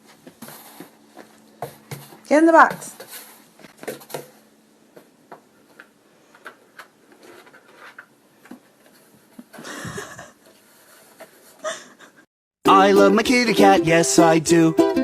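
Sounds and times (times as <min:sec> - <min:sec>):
scratchy rustle: 0:07.1 - 0:08.1.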